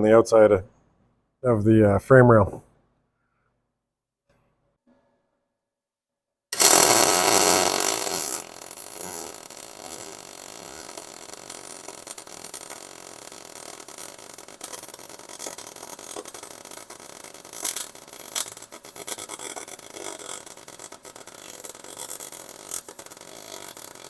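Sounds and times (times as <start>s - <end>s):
welding crackling hiss: 6.6s - 24.0s.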